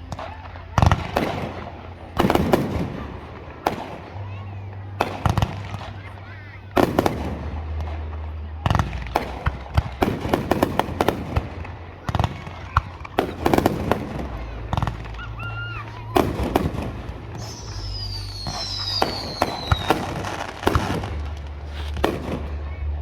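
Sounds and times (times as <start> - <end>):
fireworks bangs and crackles: 0.0 - 23.0
firework whistle falling in pitch: 17.4 - 20.2.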